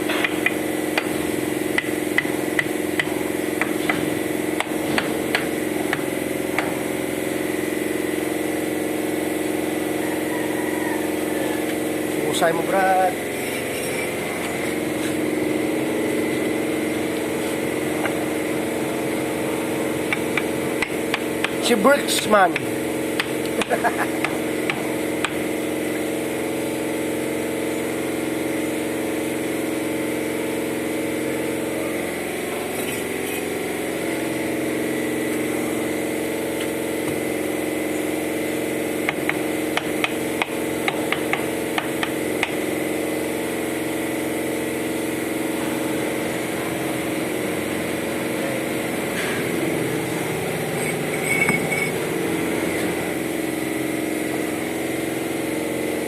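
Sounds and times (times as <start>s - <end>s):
machine hum: 0.0s - 56.0s
taps and clinks on brickwork: 51.1s - 52.0s.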